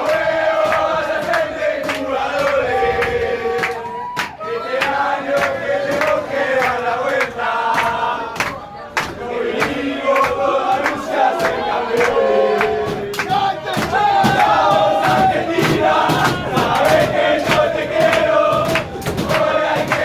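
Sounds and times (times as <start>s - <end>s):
crowd chanting and shouting: 0.0s - 20.0s
loud rhythmic strikes: 5.3s - 20.0s.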